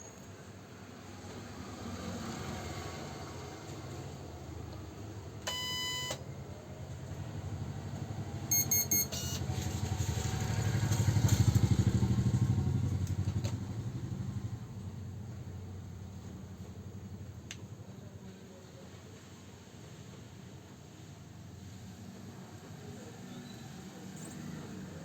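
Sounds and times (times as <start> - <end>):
printer beeps: 5.5 - 6.3, 8.5 - 9.6.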